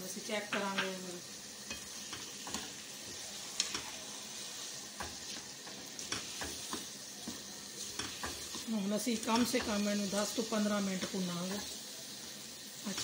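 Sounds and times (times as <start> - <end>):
food sizzling in a pan: 0.0 - 13.0
spatula scraping a pan: 1.6 - 10.3.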